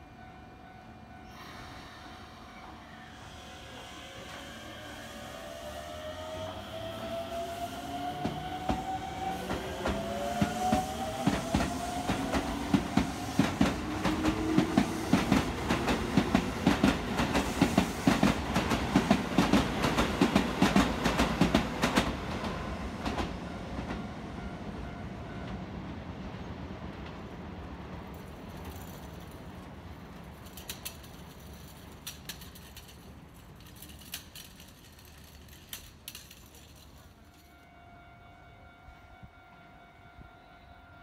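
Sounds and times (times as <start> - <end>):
wheels clacking over rail joints: 28.0 - 37.6.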